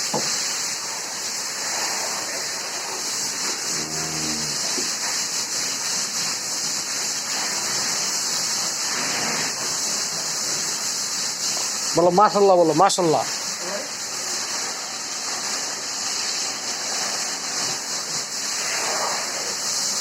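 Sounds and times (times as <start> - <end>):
water spraying and splashing: 0.0 - 20.0.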